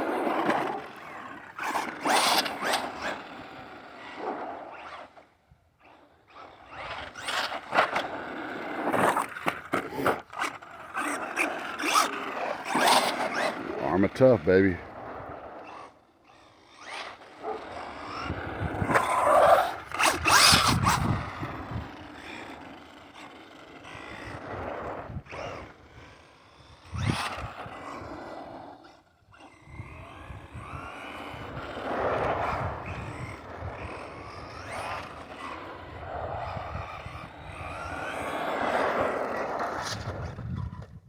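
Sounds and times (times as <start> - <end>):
toy truck electric motor whining: 0.0 - 41.0
tyre noise: 6.7 - 15.8, 16.8 - 25.6.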